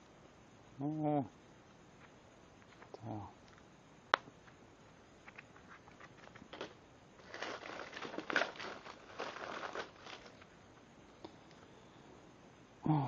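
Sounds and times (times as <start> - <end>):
plastic packaging rustling: 5.6 - 10.5.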